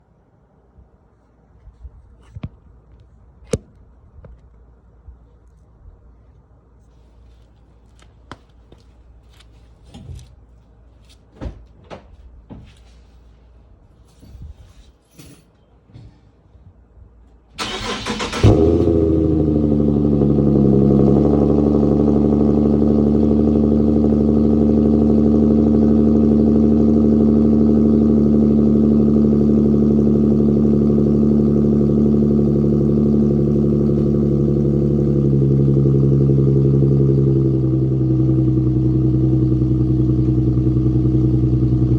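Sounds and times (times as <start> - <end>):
car engine revving and idling: 17.6 - 41.9.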